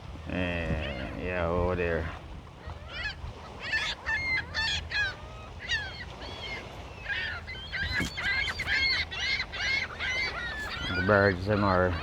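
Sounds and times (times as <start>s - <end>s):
flock of birds calling: 2.9s - 12.0s.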